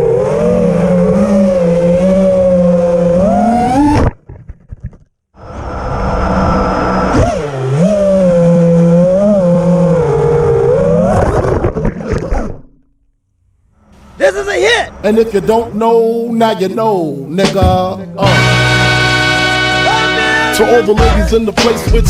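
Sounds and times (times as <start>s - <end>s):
quadcopter motors whining: 0.0s - 4.0s, 5.4s - 11.5s.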